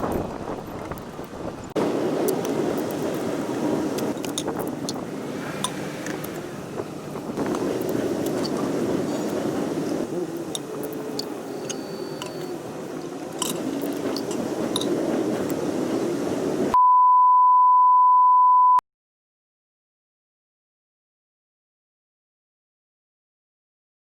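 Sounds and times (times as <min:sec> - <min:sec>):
low rumbling noise: 0:00.0 - 0:10.2
loud electronic beep: 0:16.8 - 0:18.8.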